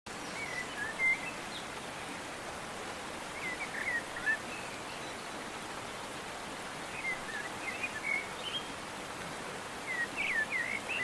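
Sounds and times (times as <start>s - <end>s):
steady outdoor hiss: 0.1s - 11.0s
small birds chirping: 6.9s - 8.8s, 9.8s - 11.0s.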